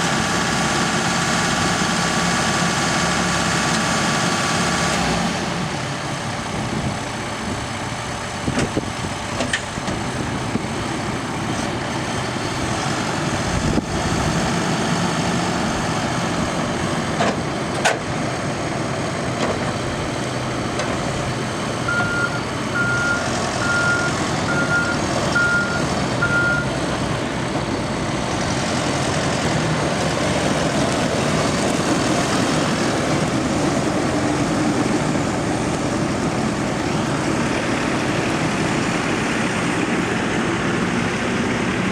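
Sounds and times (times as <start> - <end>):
diesel engine running: 0.0 - 41.9
backup alarm beeping: 21.9 - 26.7.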